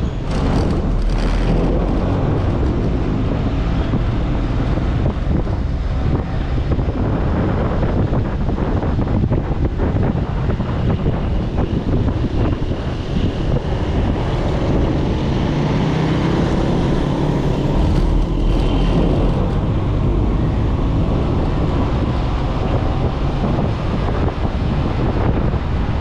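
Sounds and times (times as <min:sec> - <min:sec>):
moving vehicle rumble: 0:00.0 - 0:26.0
road traffic: 0:00.0 - 0:26.0
wind buffeting microphone: 0:00.0 - 0:26.0.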